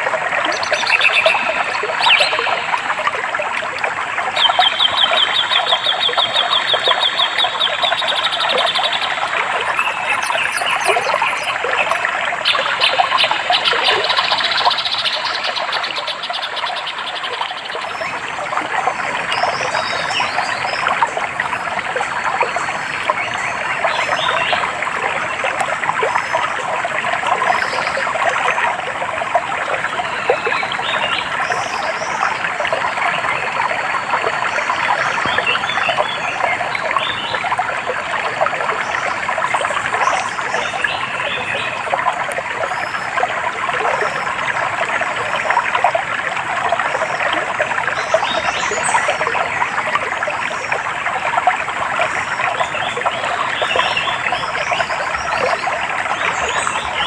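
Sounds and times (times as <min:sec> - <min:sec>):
stream trickling and babbling: 0:00.0 - 0:57.0.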